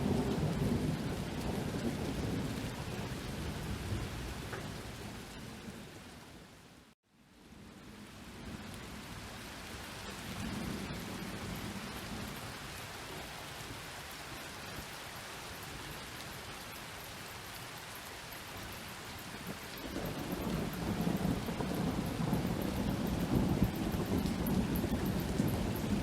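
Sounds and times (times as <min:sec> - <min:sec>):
thunder rumbling: 0:00.0 - 0:05.9, 0:19.3 - 0:26.0
steady rain: 0:00.0 - 0:26.0.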